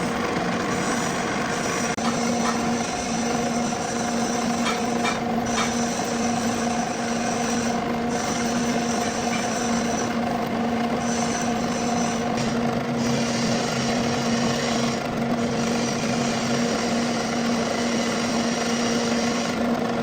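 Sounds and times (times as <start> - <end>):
lathe motor hum: 0.0 - 20.0
hiss of metal cutting: 0.7 - 10.2.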